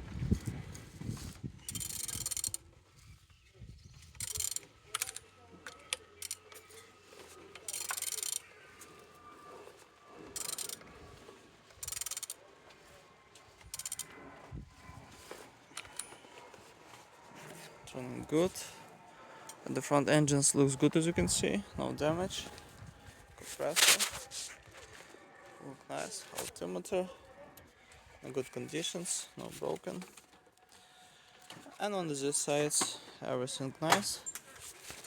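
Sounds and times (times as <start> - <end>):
wrench clicking and ratcheting: 1.7 - 2.6, 4.1 - 6.5, 7.6 - 8.4, 10.4 - 10.8, 11.8 - 12.4, 13.7 - 14.1.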